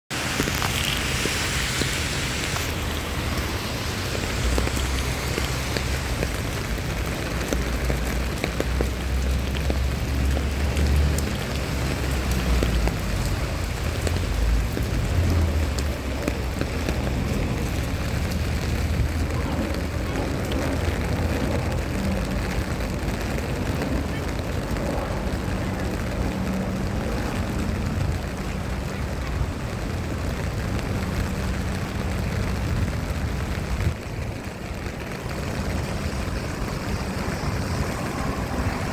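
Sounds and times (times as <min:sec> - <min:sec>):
rain falling: 0:00.1 - 0:38.9
low rumble: 0:30.6 - 0:38.9.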